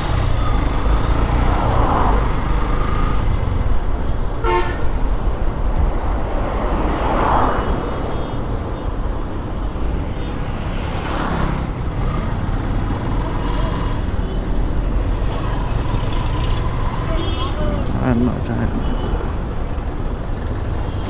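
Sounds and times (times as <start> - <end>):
traffic engines rumbling: 0.0 - 21.0
vehicle horn toot: 4.4 - 5.1.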